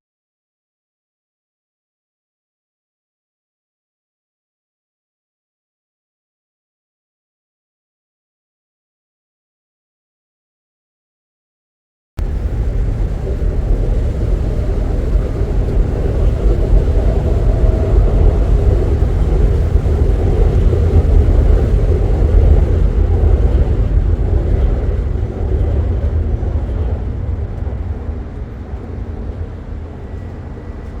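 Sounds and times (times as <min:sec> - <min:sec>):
loud low vehicle rumble: 0:12.2 - 0:31.0.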